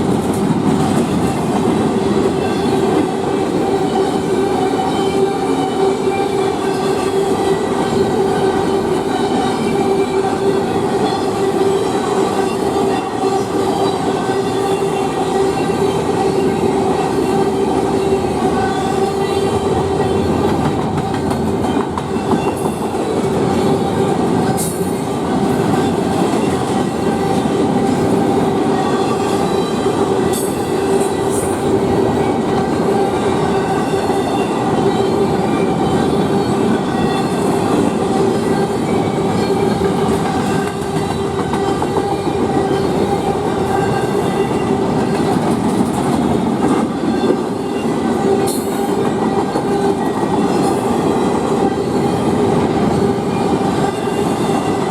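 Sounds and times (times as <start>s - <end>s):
train wheels rumbling on rail: 0.0s - 54.9s.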